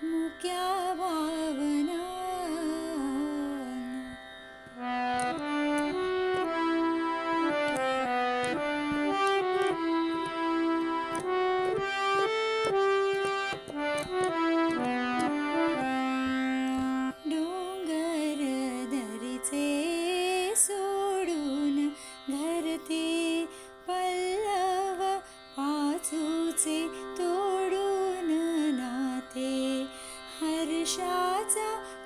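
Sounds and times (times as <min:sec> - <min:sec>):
keyboard melody: 0:04.8 - 0:18.0.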